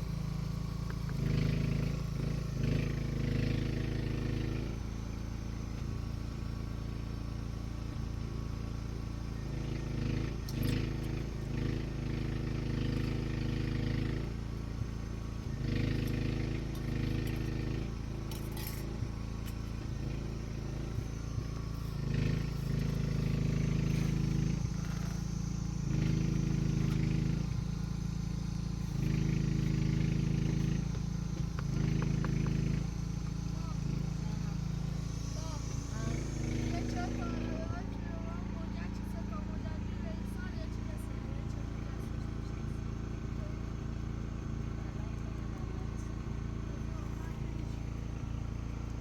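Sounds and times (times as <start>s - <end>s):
engine running: 0.0s - 49.0s
light metallic clinks: 18.3s - 19.7s.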